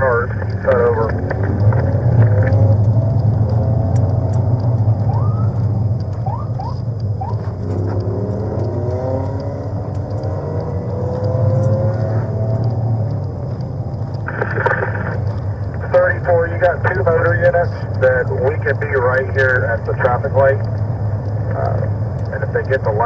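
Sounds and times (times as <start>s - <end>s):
low road rumble: 0.0s - 23.0s
vehicle engine accelerating: 0.0s - 23.0s.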